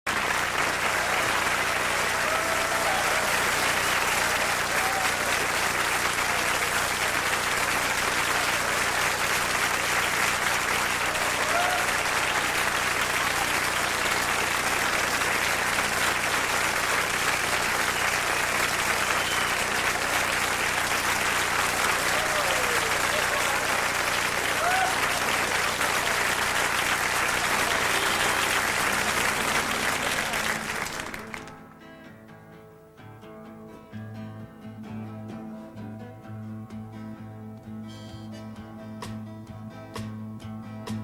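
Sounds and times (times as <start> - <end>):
audience applauding: 0.0 - 31.8
shouts and whistles: 0.8 - 7.3, 11.0 - 12.6, 18.4 - 20.2, 21.5 - 31.4.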